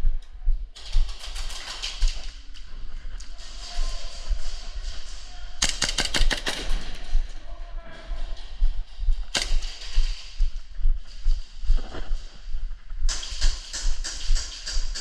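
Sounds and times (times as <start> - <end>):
low rumble: 0.0 - 5.6, 6.5 - 15.0
airsoft gun firing: 5.6 - 7.0, 9.3 - 10.3, 13.1 - 15.0.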